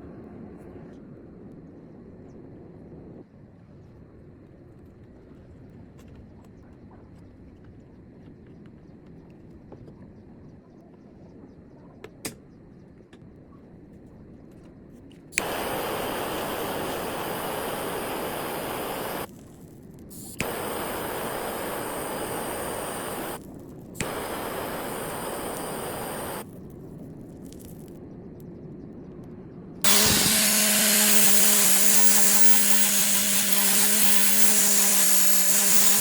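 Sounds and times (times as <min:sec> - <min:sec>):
click: 0:15.4 - 0:19.3, 0:20.2 - 0:26.4
hissing spray bursts: 0:15.4 - 0:19.3, 0:20.1 - 0:26.5, 0:29.9 - 0:36.0.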